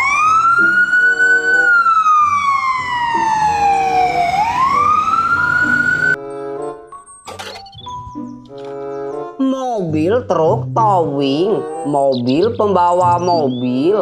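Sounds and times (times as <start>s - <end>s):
ambulance siren wailing: 0.0s - 6.2s
background music: 0.0s - 14.0s.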